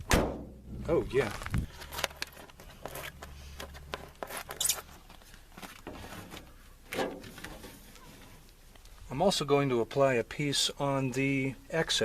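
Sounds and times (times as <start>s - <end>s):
insulation sheet crinkling and tearing: 1.1s - 6.4s.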